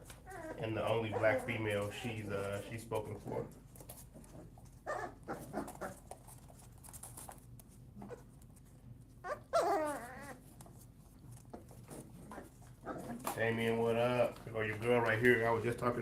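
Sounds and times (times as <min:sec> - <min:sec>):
puppies whimpering: 0:00.1 - 0:02.4, 0:09.2 - 0:10.6.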